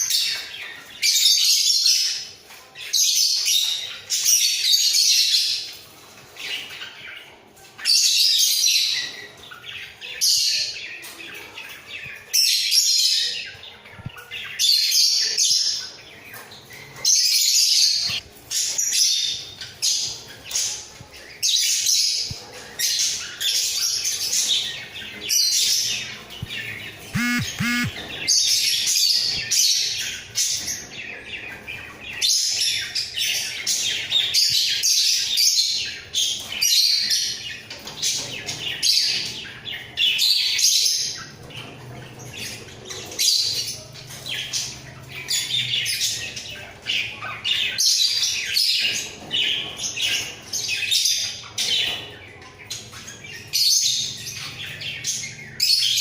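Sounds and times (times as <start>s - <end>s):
budgerigars chirping and squawking: 0.0s - 56.0s
lower bird call: 27.2s - 28.0s.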